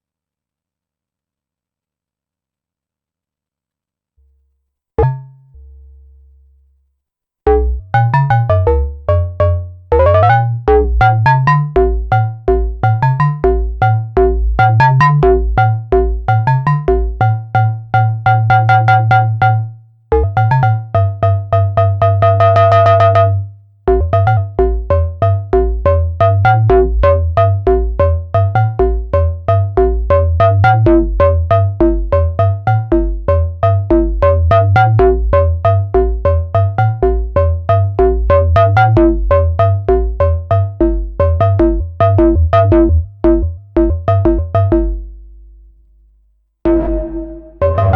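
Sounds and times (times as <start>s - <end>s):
synthesizer bass pattern: 7.5s - 19.4s, 23.9s - 45.1s, 46.7s - 47.9s.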